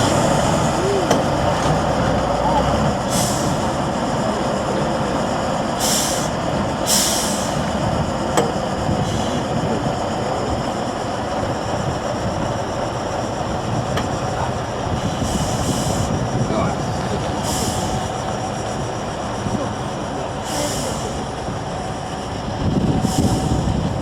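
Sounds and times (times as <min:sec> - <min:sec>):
truck engine running: 0:00.0 - 0:24.0
air hissing: 0:03.0 - 0:03.8, 0:05.7 - 0:09.6, 0:15.0 - 0:16.2, 0:17.4 - 0:18.2, 0:20.4 - 0:21.3, 0:22.8 - 0:24.0.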